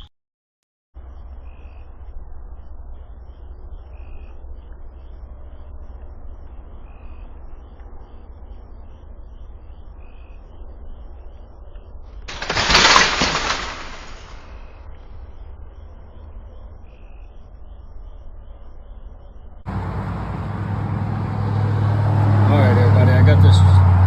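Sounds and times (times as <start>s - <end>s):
sudden loud rush of noise: 12.3s - 14.5s.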